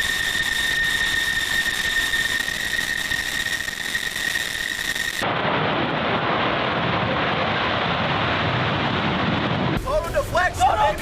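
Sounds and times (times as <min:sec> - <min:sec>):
jet engine whine and hiss: 0:00.0 - 0:05.5
dull jet roar: 0:00.0 - 0:11.0.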